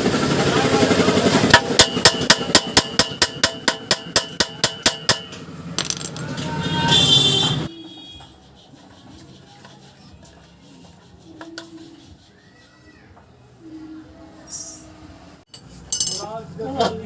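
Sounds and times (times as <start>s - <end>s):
hammer striking metal: 1.5s - 6.5s.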